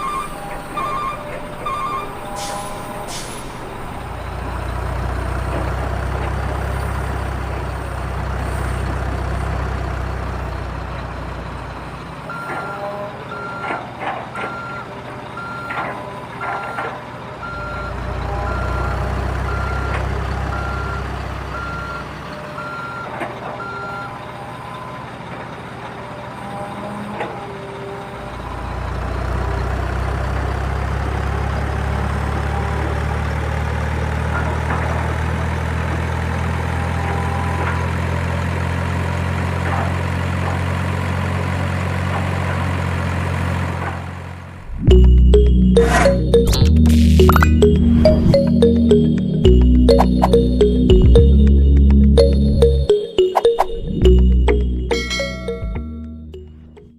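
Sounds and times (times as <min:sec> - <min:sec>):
reversing alarm beeping: 0:00.0 - 0:04.9, 0:14.4 - 0:25.1, 0:44.7 - 0:56.9
heavy vehicle engine rumbling: 0:00.0 - 0:53.0.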